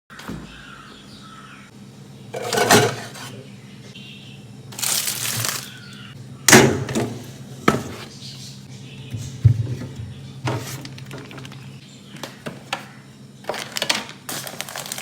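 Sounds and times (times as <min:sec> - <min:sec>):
containers clattering: 0:02.4 - 0:03.4, 0:04.8 - 0:05.8, 0:06.5 - 0:08.1, 0:09.2 - 0:11.7, 0:13.5 - 0:15.0.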